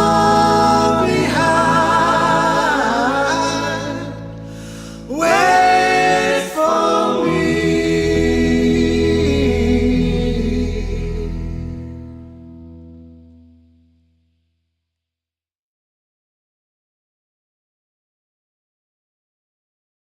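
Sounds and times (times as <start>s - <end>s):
voices singing wordless harmony: 0.0s - 12.0s.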